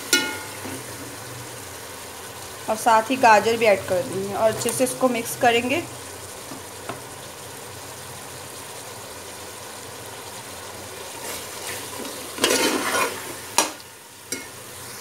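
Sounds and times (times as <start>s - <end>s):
vegetables sizzling in oil: 0.0s - 15.0s
spatula scraping a pot: 11.1s - 13.5s.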